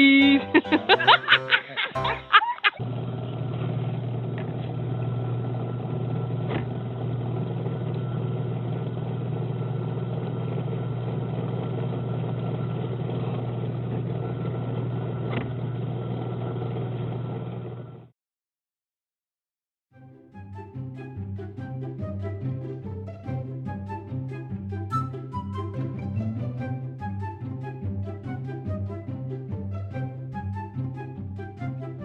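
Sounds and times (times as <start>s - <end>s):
low mechanical hum: 2.8s - 18.1s.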